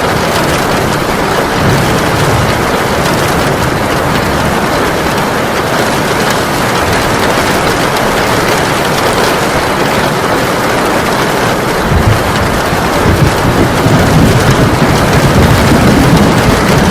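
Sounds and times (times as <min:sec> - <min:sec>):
low rumble of thunder: 0:00.0 - 0:08.2, 0:11.3 - 0:16.9
heavy rain pouring: 0:00.0 - 0:16.9.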